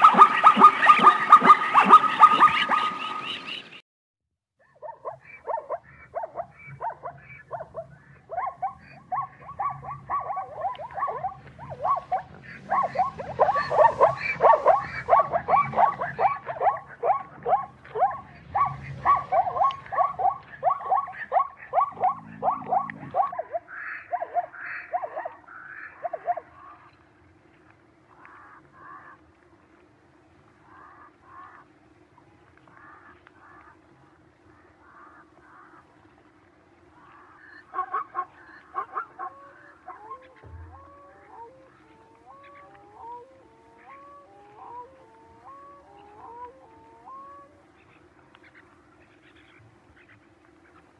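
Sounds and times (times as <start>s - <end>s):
zebra barking calls: 0.0s - 3.7s, 4.6s - 27.0s, 30.5s - 36.2s, 36.8s - 50.9s
low steady hum: 5.3s - 50.9s.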